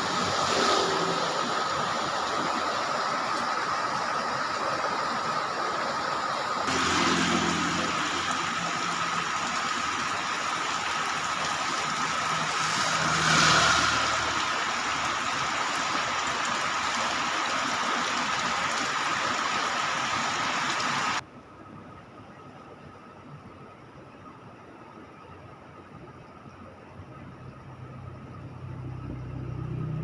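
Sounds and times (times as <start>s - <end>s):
heavy rain and wind: 0.0s - 23.9s
low hum: 11.8s - 15.5s.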